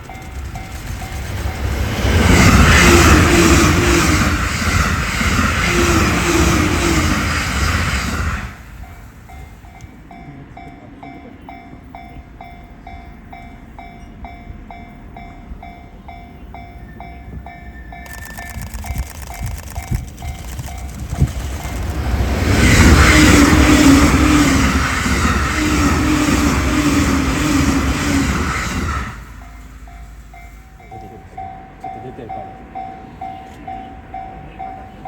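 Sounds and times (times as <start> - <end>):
crossing warning bell ringing: 0.0 - 2.0, 29.4 - 35.0
train wheels clattering: 0.0 - 6.6, 17.8 - 26.6.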